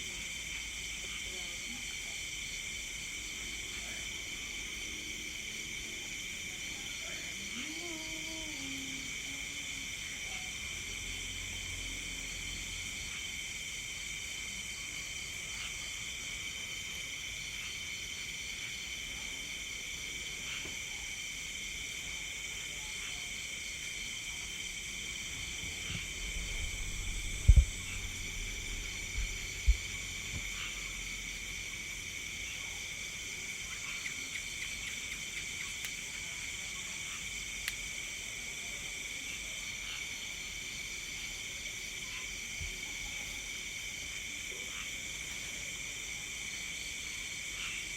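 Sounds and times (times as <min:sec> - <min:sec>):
crickets and insects trilling: 0:00.0 - 0:47.9
dull low thumps: 0:25.8 - 0:30.5.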